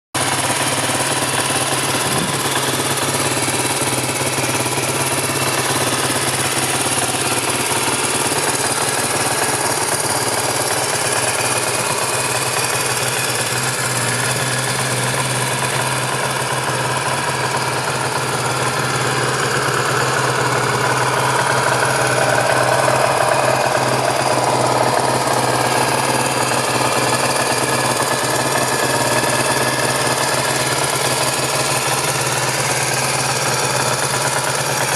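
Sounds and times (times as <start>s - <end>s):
motorcycle engine running: 0.2s - 34.9s.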